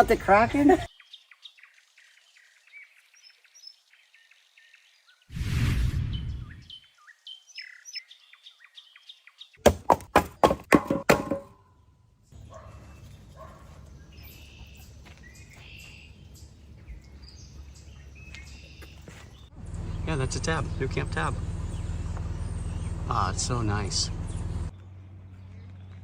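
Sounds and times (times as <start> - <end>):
small birds chirping: 0.0 - 5.3, 5.9 - 9.7, 12.4 - 26.0
loud sharp knocks: 9.6 - 11.5.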